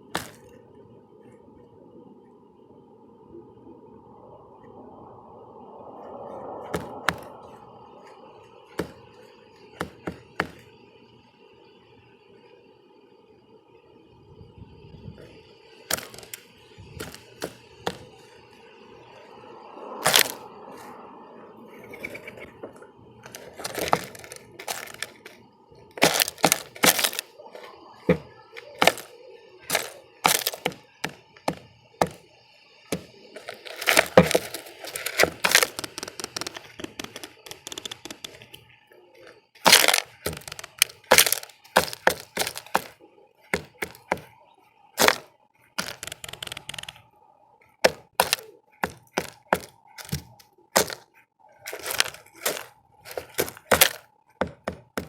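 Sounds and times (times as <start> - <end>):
birds pecking at feeder: 6.7 - 7.6, 8.6 - 10.8, 15.9 - 18.5, 20.0 - 20.5, 23.2 - 44.4, 45.0 - 47.0, 47.6 - 55.0.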